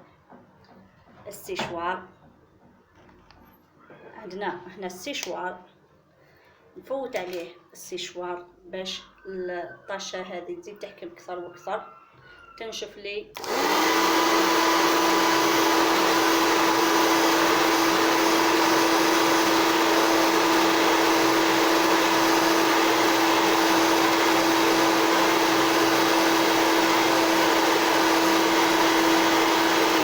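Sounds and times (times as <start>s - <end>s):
hair dryer running: 13.4s - 30.0s.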